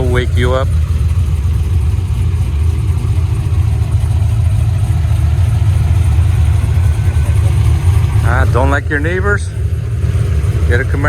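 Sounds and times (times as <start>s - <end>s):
car engine idling loud: 0.0s - 11.0s.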